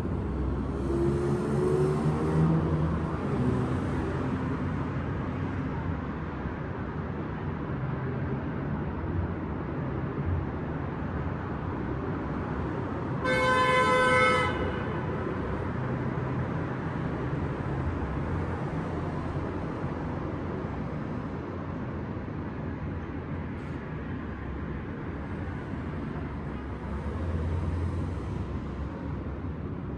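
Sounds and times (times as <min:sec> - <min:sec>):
city street traffic hum: 0:00.0 - 0:29.9
car horn honk: 0:13.2 - 0:14.9.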